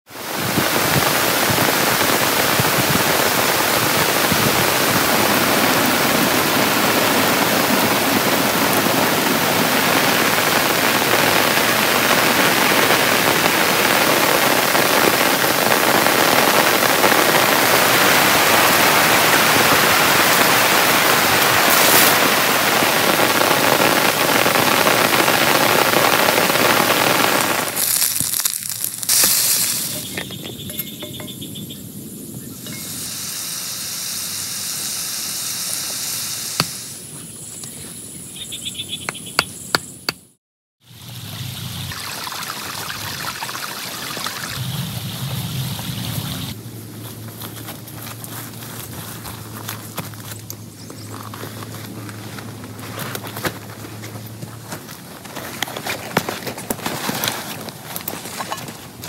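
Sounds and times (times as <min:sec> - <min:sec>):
heavy rain pouring: 0:00.1 - 0:30.3, 0:40.9 - 0:46.6.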